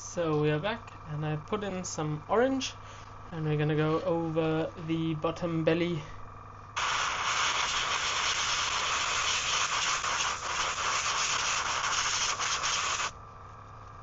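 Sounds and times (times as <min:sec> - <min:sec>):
airbrush hissing: 0:06.8 - 0:13.2.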